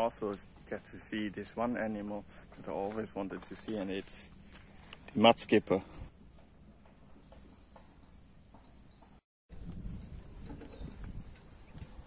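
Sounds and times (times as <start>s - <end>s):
bird chirping: 6.2s - 9.2s.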